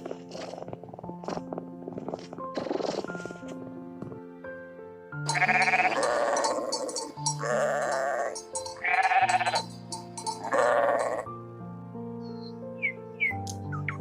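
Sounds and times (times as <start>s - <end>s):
background music: 0.0s - 14.0s
sheep bleating: 5.3s - 9.7s, 10.4s - 11.3s.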